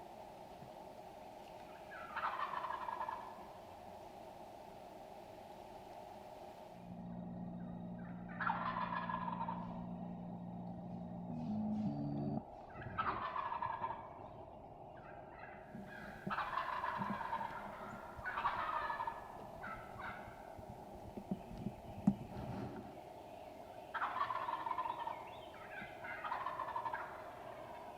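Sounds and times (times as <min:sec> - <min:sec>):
low steady hum: 0:00.0 - 0:27.9
turkey gobbling: 0:01.7 - 0:03.6, 0:06.8 - 0:23.0, 0:23.8 - 0:27.9.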